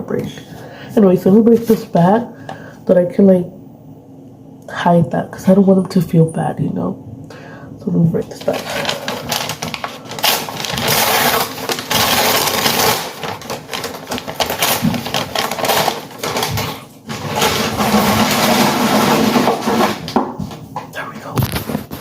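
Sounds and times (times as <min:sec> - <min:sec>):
food bags and wrappers crumpling: 0:08.3 - 0:20.2.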